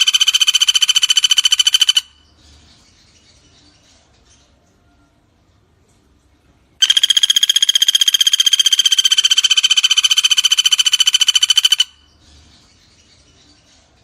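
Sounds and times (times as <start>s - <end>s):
woodpecker rattling trill: 0.0s - 2.2s, 6.8s - 12.2s.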